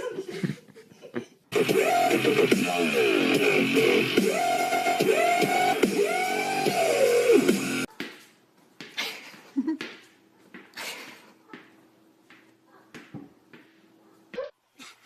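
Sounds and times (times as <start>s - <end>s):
music: 1.5s - 7.9s.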